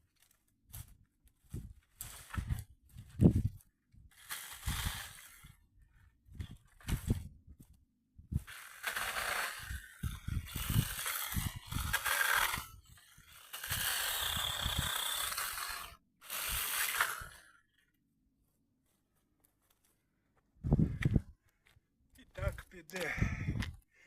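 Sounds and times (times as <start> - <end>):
branches rustling and crunching: 0.0 - 7.2.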